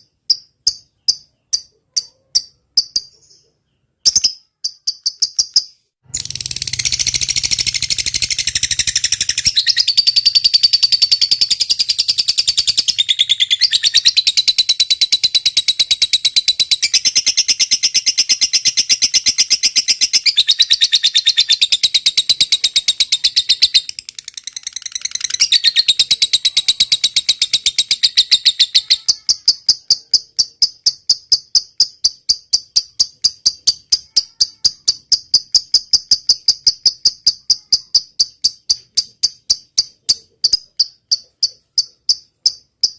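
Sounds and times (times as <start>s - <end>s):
high rattling trill: 6.0s - 12.0s.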